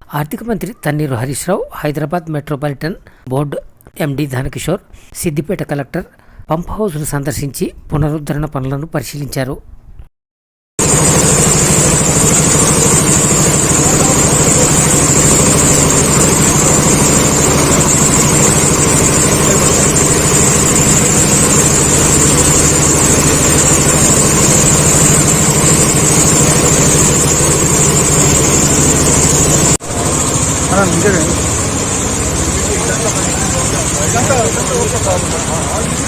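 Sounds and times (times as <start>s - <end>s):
engine running steadily: 10.8s - 36.0s.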